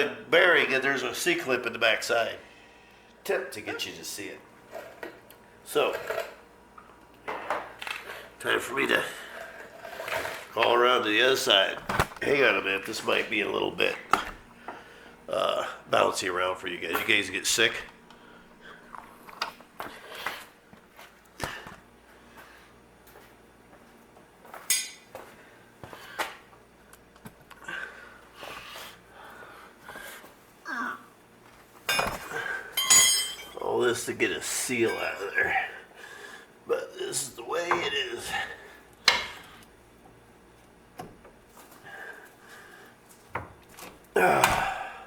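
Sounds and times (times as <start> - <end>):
steel tools striking metal: 24.7 - 25.0, 32.8 - 33.6.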